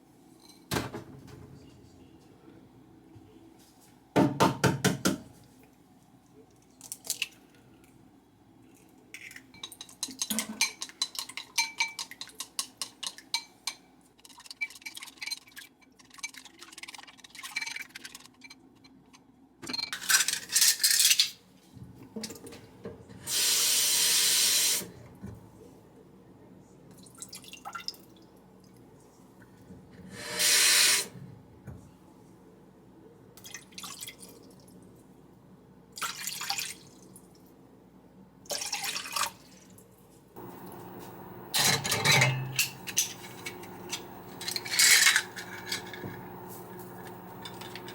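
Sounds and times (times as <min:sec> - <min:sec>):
tap water running: 0:40.4 - 0:47.9.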